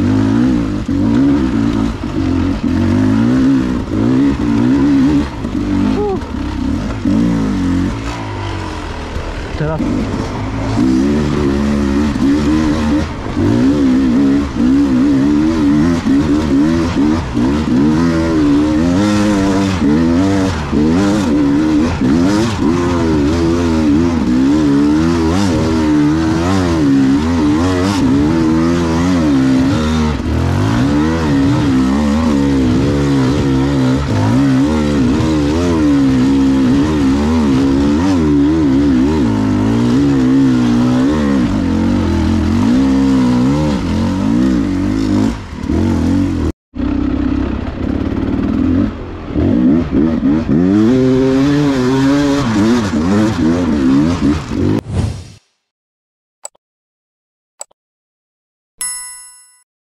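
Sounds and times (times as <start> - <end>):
motorcycle engine revving: 0.0 - 54.8.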